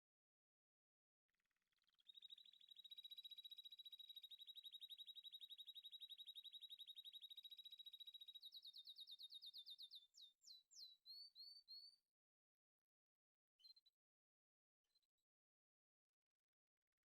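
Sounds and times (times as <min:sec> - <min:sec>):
bird singing trill: 0:01.9 - 0:12.0, 0:13.6 - 0:14.0.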